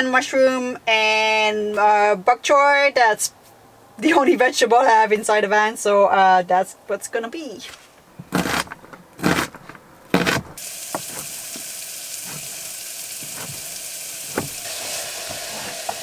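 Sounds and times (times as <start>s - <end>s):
handling knocks: 8.2s - 12.6s, 13.2s - 16.0s
pan sizzling: 10.6s - 16.0s.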